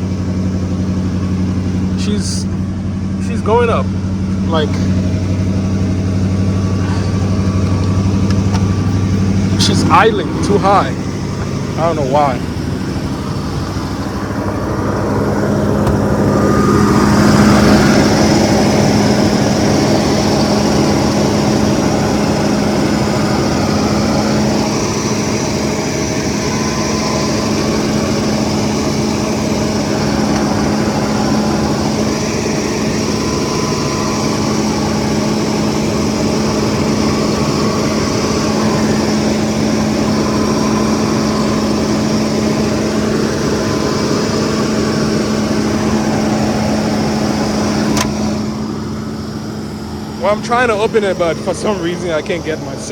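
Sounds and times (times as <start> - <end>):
car engine fast idle: 0.0 - 52.9.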